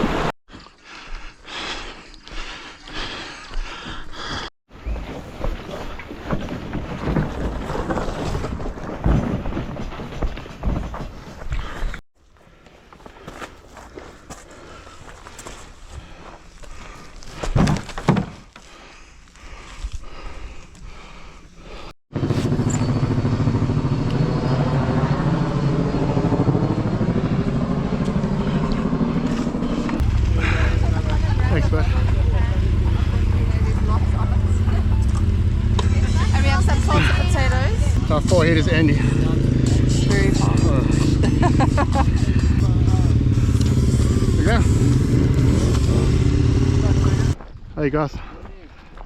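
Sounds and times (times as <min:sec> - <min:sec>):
vehicle engine running: 0:22.1 - 0:47.4.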